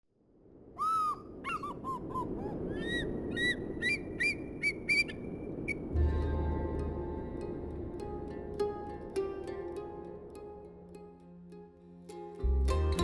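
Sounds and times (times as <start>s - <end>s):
bird calling: 0.8s - 5.9s
music with low drone: 5.9s - 11.6s, 12.2s - 13.0s.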